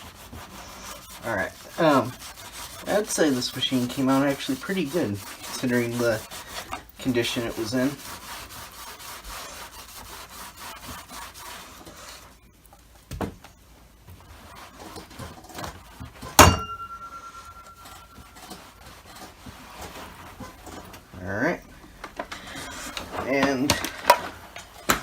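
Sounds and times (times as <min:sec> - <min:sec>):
rubbing strokes on plastic: 0:00.0 - 0:12.5, 0:13.9 - 0:16.4, 0:17.1 - 0:25.0
sharp knock with ring: 0:16.4 - 0:17.2.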